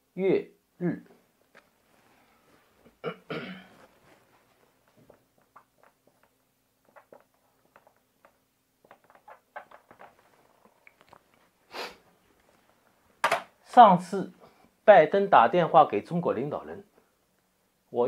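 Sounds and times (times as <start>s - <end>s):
man coughing: 3.0s - 3.8s.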